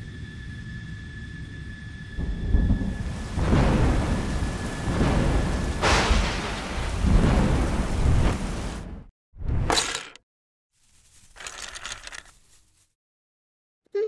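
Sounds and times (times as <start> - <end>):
thunder rumbling: 0.1 - 9.1
sharp thunderclap: 2.2 - 9.1
steady rain: 2.4 - 9.0.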